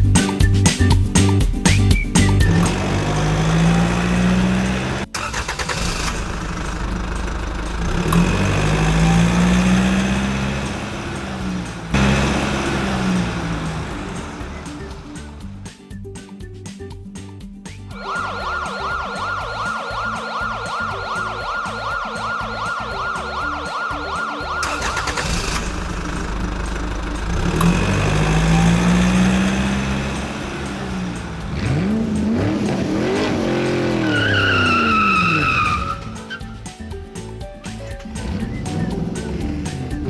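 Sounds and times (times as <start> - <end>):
engine revving: 2.2 - 15.7, 24.5 - 36.8, 37.9 - 40.0
warbling siren tone: 17.9 - 24.9
high screeching squeal: 34.0 - 36.5.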